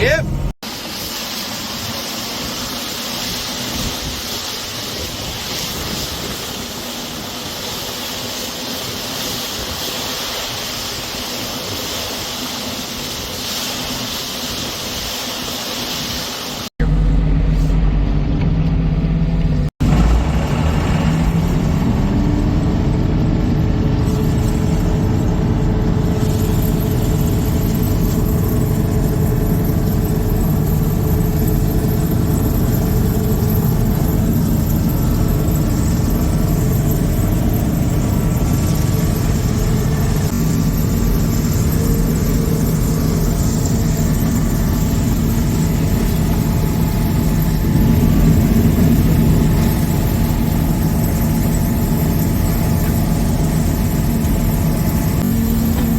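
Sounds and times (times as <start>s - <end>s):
combine harvester running: 0.0s - 55.9s.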